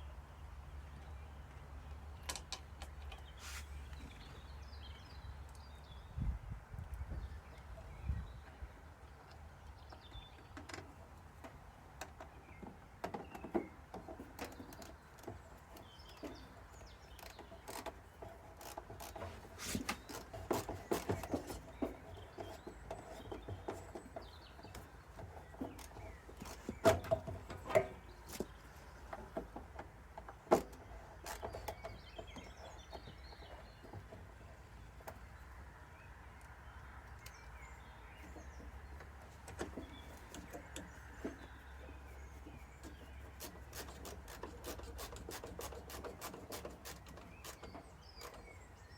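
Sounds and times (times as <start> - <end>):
faint birdsong: 0.0 - 48.9
hand tools clicking and tapping: 42.9 - 48.4.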